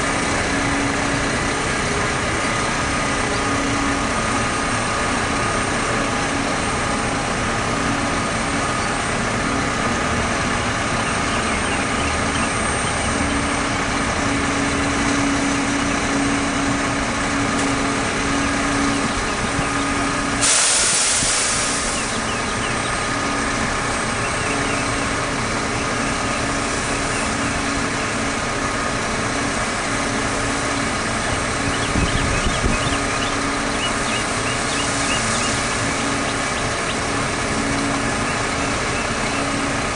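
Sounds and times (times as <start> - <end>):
truck diesel engine running: 0.0 - 39.9
loud hiss of air: 20.4 - 22.3.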